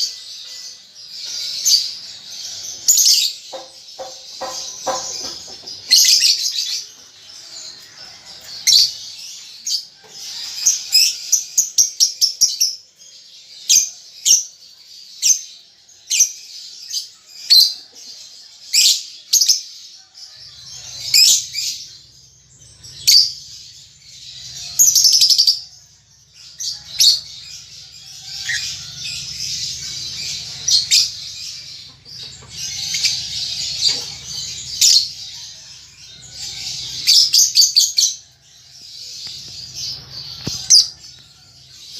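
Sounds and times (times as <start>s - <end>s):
lovebird ticking calls: 3.5s - 5.7s.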